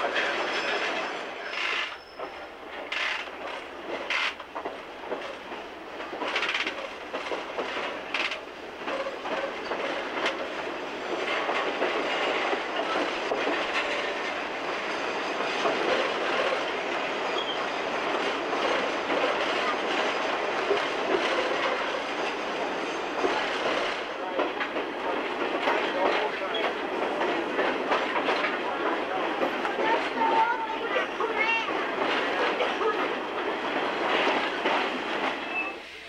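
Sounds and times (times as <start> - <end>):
wheels clattering on rails: 0.0 - 35.8
brief squeal: 1.5 - 2.5, 17.3 - 17.7, 35.4 - 35.9.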